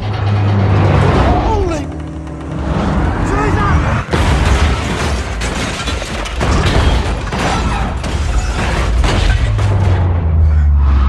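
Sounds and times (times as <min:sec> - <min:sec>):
steady low drone: 0:00.0 - 0:04.7, 0:09.4 - 0:11.0
film music: 0:00.0 - 0:11.0
loud booms and crashing impacts: 0:03.1 - 0:10.3.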